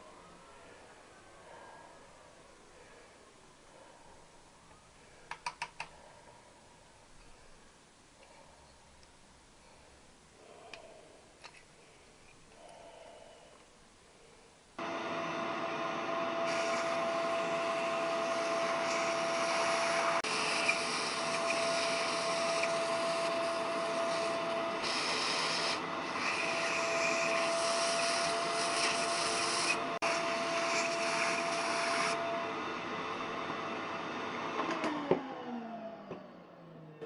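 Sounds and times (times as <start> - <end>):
small electric motor running: 14.8 - 32.3.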